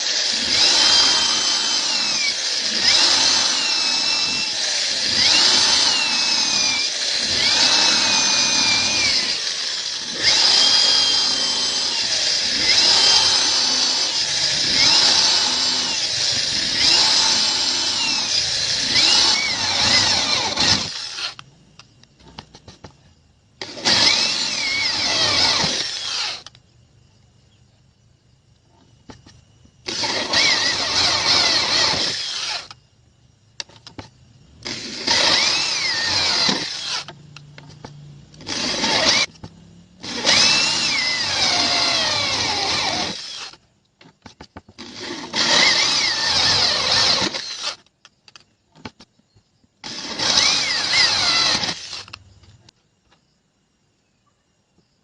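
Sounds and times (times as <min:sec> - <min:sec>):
power tool cutting wood: 0:00.0 - 0:21.4, 0:23.6 - 0:26.5, 0:29.8 - 0:32.8, 0:34.6 - 0:37.2, 0:38.4 - 0:39.3, 0:40.0 - 0:43.6, 0:44.8 - 0:47.8, 0:49.8 - 0:52.2.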